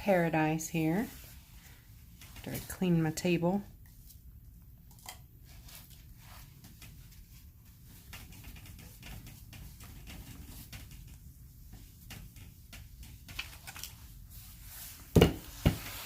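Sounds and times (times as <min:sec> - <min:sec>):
low room hum: 0:00.0 - 0:16.0
art supplies clicking and rustling: 0:12.0 - 0:14.0.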